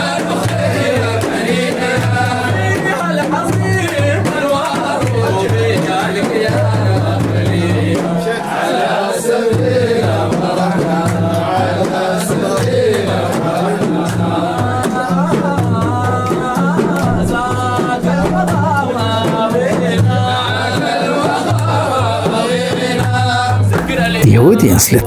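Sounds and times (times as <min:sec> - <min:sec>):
low rhythmic bass note: 0:23.8 - 0:25.0
person singing: 0:23.8 - 0:25.0.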